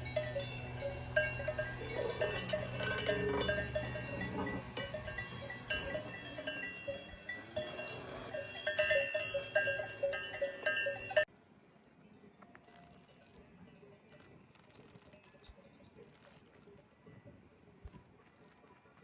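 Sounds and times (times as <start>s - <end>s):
cowbells clanking: 0.0s - 11.3s.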